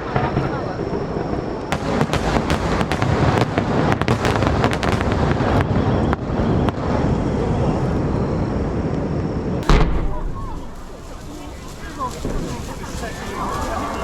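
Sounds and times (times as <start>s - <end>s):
fireworks bangs and crackles: 0.0s - 14.0s
heavy rumble: 0.0s - 14.0s.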